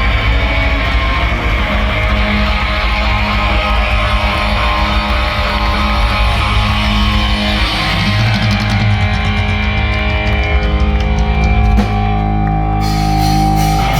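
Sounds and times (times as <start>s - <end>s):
distorted electric guitars and bass: 0.0s - 13.9s
drum and cymbal hits: 0.0s - 13.9s.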